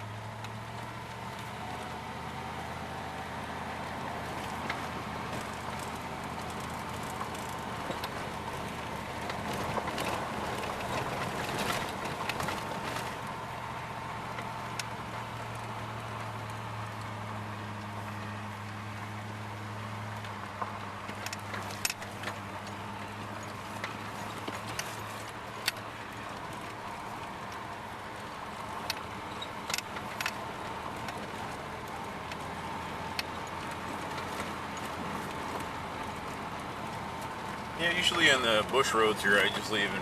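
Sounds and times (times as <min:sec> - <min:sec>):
pickup truck engine drone: 0:00.0 - 0:40.0
rattles and knocks from truck: 0:04.4 - 0:13.2, 0:20.5 - 0:26.8.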